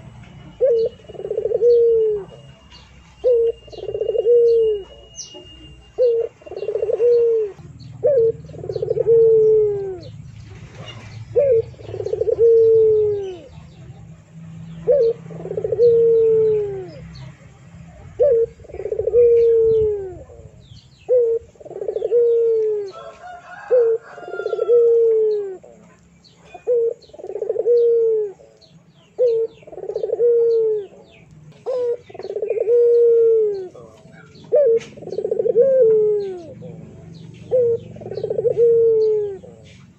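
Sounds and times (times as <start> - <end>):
faint high chirps: 0.0 - 10.1.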